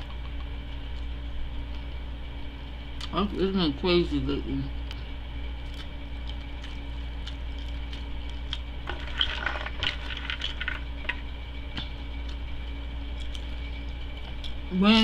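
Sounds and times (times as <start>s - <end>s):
popcorn being chewed: 0.0s - 2.0s, 5.6s - 14.7s
low hum: 0.0s - 15.0s.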